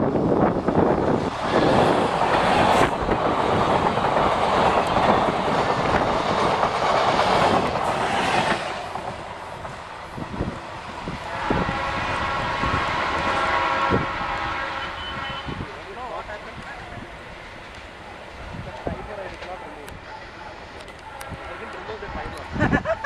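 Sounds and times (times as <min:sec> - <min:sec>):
train passing at speed: 0:00.0 - 0:23.0.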